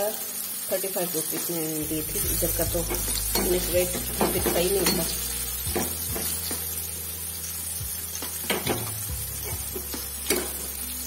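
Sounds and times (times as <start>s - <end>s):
mushrooms sizzling in hot oil: 0.0s - 11.0s
spatula knocking on pan: 5.7s - 6.6s, 8.2s - 10.7s.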